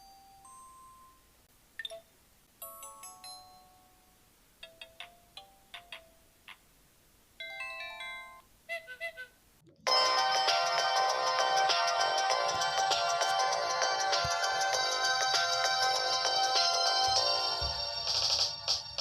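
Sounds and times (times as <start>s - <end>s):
phone ringtone: 7.4s - 8.4s.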